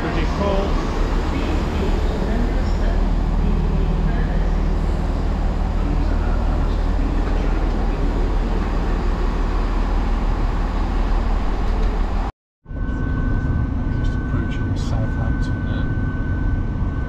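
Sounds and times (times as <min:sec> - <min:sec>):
diesel train idling: 0:00.0 - 0:12.3
moving train carriage running noise: 0:00.0 - 0:17.0
steady high whine: 0:00.0 - 0:17.0.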